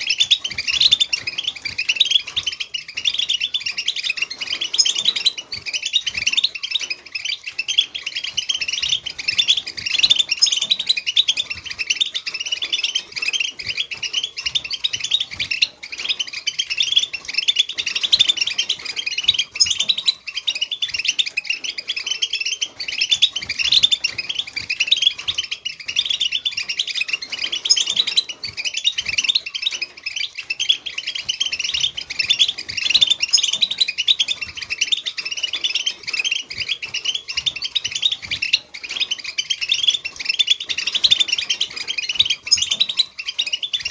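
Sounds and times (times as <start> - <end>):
finches twittering and chirping: 0.0 - 43.9.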